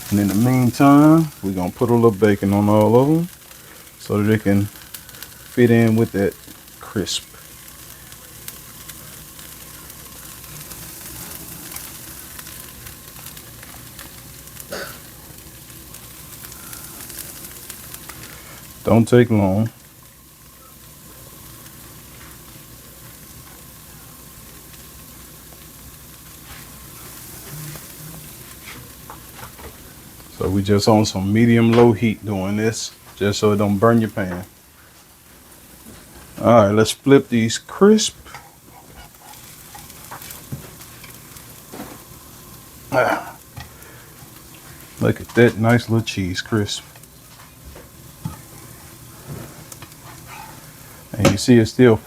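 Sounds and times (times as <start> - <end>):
bacon and cheese sizzling in a pan: 0.0 - 52.0
small crackles: 0.0 - 52.0.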